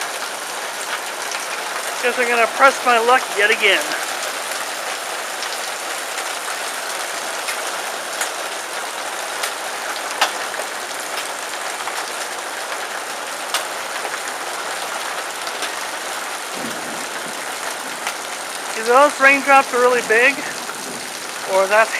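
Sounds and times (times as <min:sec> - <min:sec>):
heavy rain on metal roof: 0:00.0 - 0:21.9.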